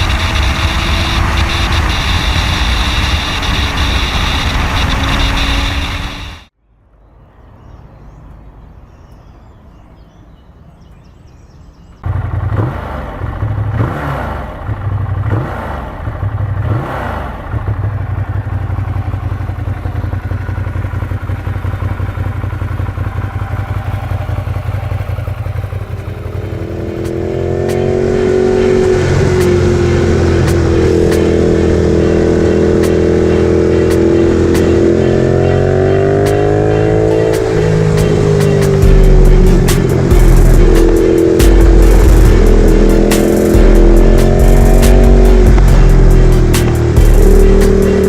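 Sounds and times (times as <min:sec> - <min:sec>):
motorcycle engine revving: 0:00.0 - 0:06.5, 0:12.0 - 0:48.0.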